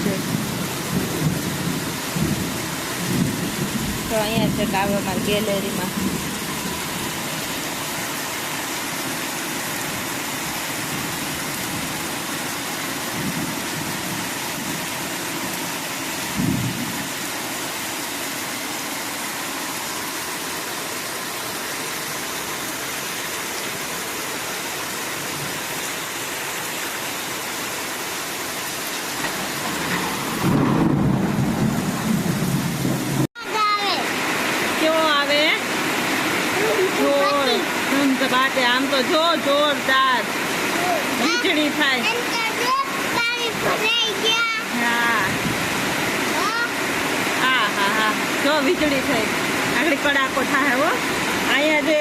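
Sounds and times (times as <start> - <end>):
thunder rumble: 0.0 - 7.2, 16.3 - 17.1, 29.2 - 33.3
heavy rain hiss: 0.0 - 52.0.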